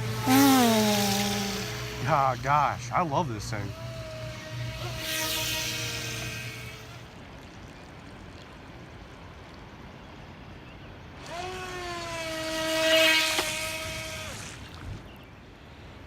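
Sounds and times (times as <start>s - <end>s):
electric motor whining: 0.0s - 7.3s, 11.2s - 15.0s.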